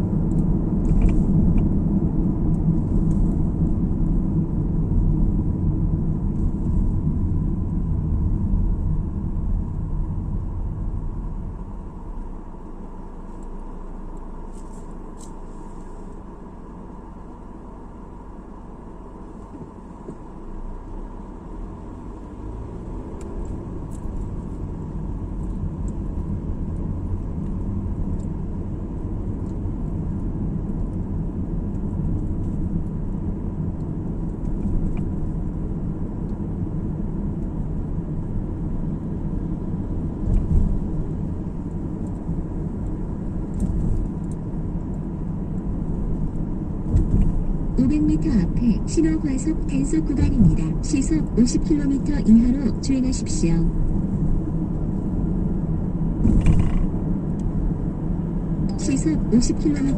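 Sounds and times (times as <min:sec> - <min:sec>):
car tyre and engine rumble: 0:00.0 - 0:59.9
car bumps: 0:56.2 - 0:56.9.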